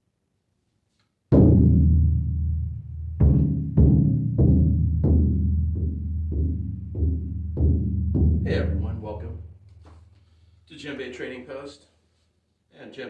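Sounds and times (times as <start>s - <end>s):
hand drum bass strokes booming: 1.3s - 9.8s.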